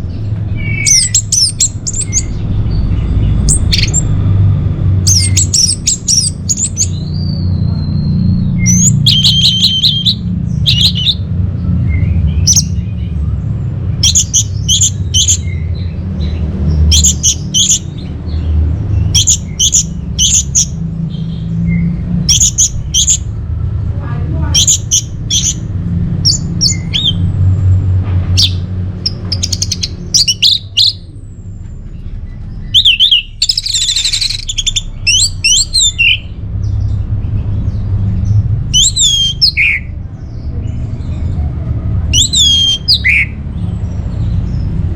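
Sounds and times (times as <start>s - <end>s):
steady low rumble: 0.0s - 44.9s
thrush calling high notes: 8.7s - 11.2s.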